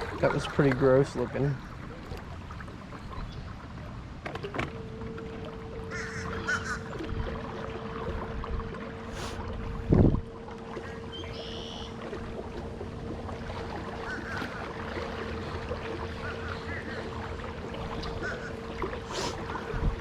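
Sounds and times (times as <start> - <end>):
faint hum: 0.0 - 20.0
wind rumbling on microphone: 6.4 - 10.4, 19.4 - 20.0.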